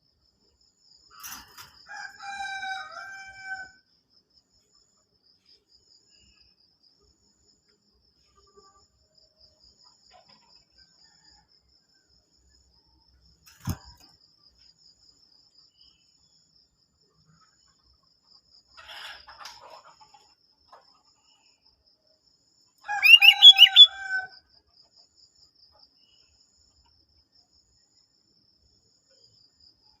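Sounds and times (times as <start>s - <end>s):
rooster crowing: 1.9s - 3.8s, 22.8s - 24.4s
faint bird calls: 22.9s - 24.0s
bulbul chirping: 23.0s - 23.9s
faint high trill: 23.0s - 23.9s.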